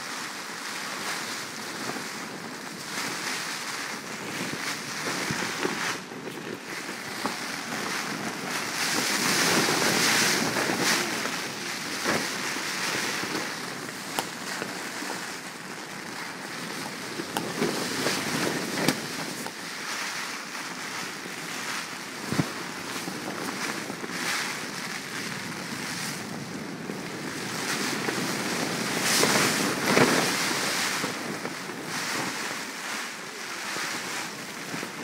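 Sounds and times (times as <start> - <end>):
wind and rain battering tent: 0.0 - 35.0
tent fabric snapping: 17.0 - 20.3.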